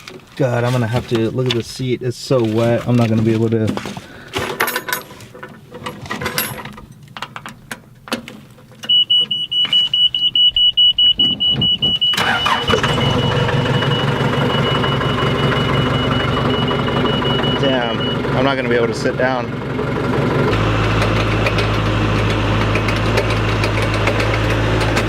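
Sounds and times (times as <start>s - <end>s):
metal knocks and clanks: 3.0s - 8.9s
forklift engine cranking and idling: 3.8s - 25.0s
rapid high warning beep: 8.8s - 18.2s.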